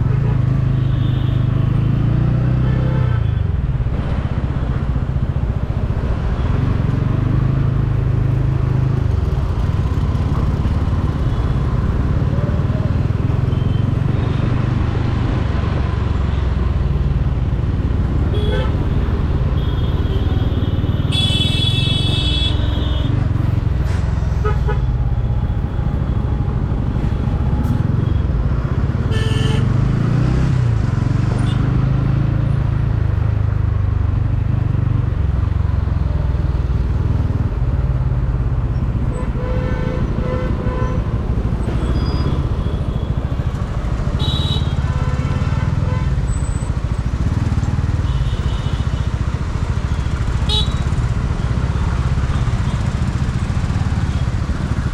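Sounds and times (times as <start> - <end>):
road traffic: 0.0 - 54.9
motorcycle engine and wind rumble: 2.6 - 29.6
vehicle horns honking: 19.6 - 23.2, 29.1 - 29.7, 44.2 - 46.2, 50.5 - 50.8.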